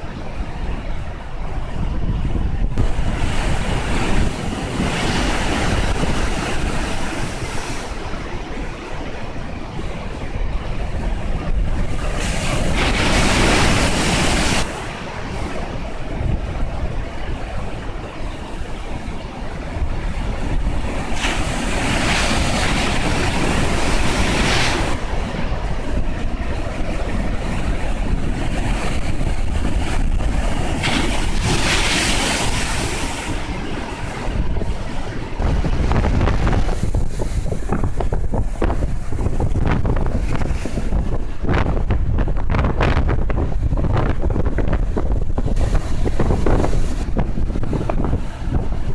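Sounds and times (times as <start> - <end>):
surf crashing: 0.0 - 48.9
wind buffeting microphone: 0.0 - 48.9.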